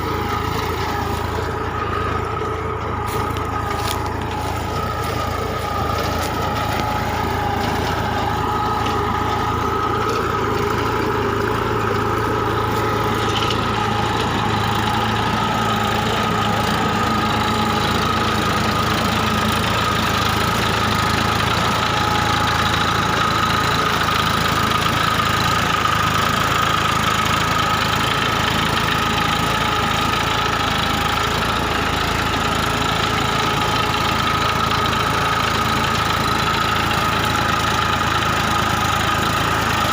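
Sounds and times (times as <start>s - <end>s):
constant whine: 0.0s - 29.3s
tractor diesel engine running: 0.0s - 39.9s.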